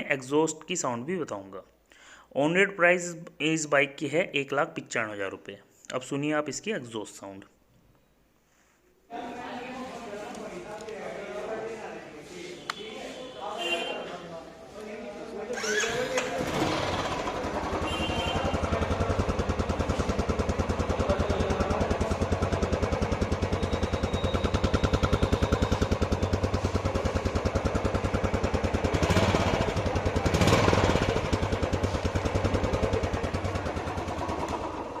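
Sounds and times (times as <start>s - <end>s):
motorcycle engine revving: 15.5s - 35.0s
motorcycle engine idling: 15.6s - 35.0s.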